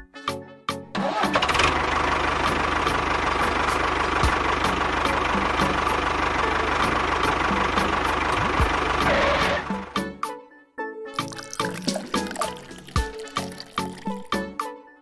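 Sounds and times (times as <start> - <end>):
engine idling with fast chugging: 1.5 - 9.9.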